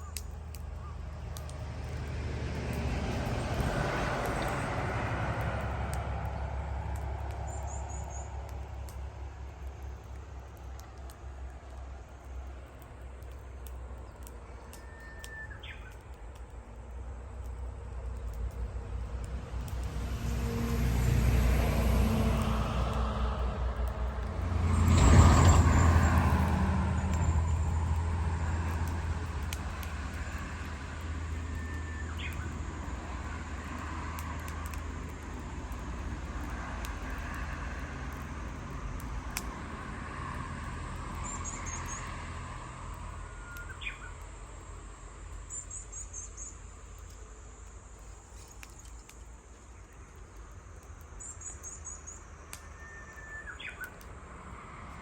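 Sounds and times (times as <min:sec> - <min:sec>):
vehicle passing: 0:00.6 - 0:12.5, 0:18.7 - 0:47.1
bird whistles: 0:52.6 - 0:53.9.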